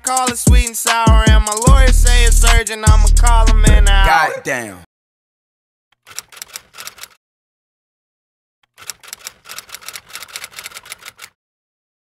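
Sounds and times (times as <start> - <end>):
typewriter key clicks: 6.0 - 7.2, 8.7 - 11.4.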